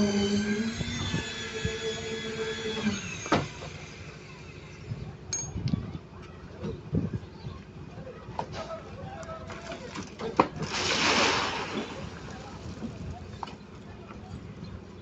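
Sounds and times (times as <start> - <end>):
motor humming: 0.0 - 5.8.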